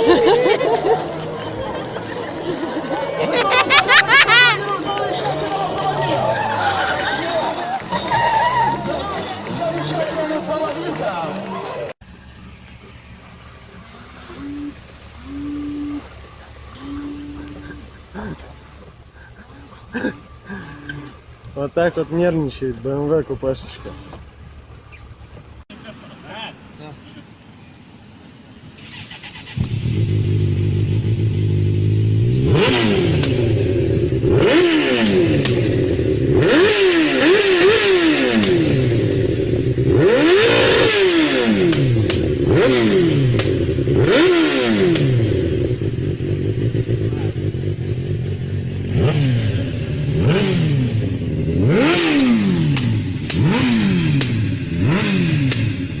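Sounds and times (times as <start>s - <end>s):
vehicle engine revving: 12.0s - 25.7s, 28.8s - 56.0s.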